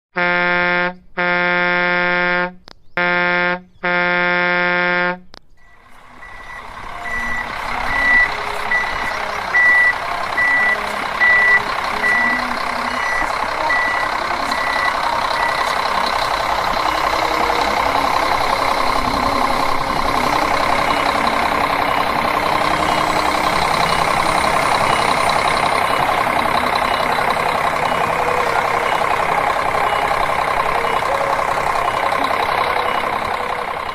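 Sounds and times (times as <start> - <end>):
toy horn honks: 0.1 - 5.3
high reversing beep: 5.6 - 16.0, 16.9 - 33.9
toy engine sound effect: 16.9 - 33.9.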